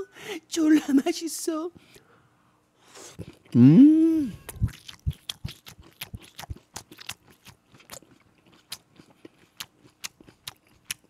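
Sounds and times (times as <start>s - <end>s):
person humming mmm: 3.5s - 5.1s
wet chewing and crunching: 4.3s - 11.0s.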